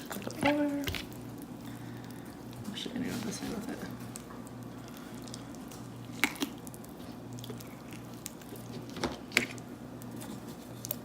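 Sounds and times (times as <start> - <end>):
faint steady hum: 0.0 - 11.0
bones snapping: 5.2 - 6.9.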